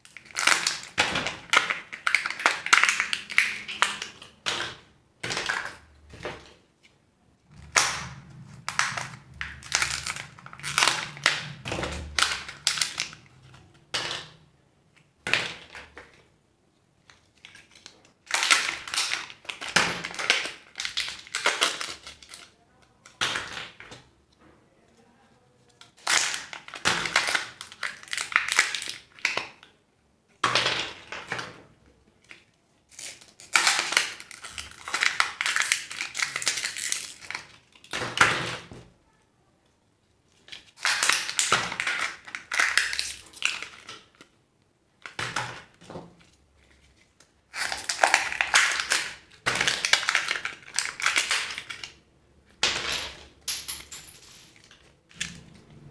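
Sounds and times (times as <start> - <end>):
plastic and foil wrappers crinkling: 0.0 - 4.4, 7.5 - 14.3, 17.0 - 24.0, 25.0 - 29.7, 32.2 - 38.0, 40.2 - 44.4, 45.0 - 52.0.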